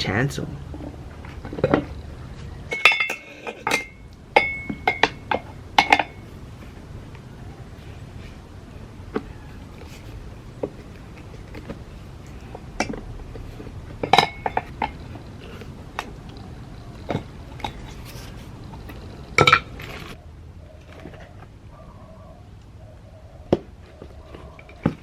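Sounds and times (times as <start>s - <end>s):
metal tire levers clinking on rim: 2.7s - 6.3s, 10.6s - 16.2s.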